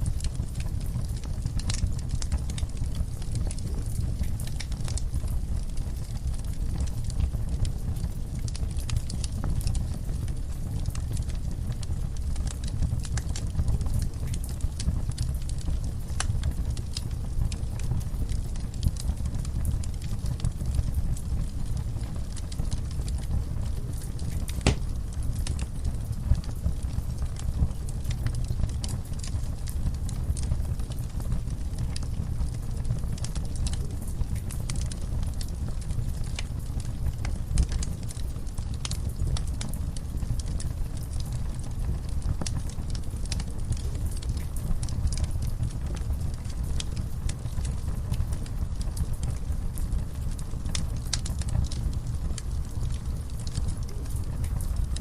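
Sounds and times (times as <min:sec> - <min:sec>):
fireplace fire crackling: 0:00.0 - 0:55.0.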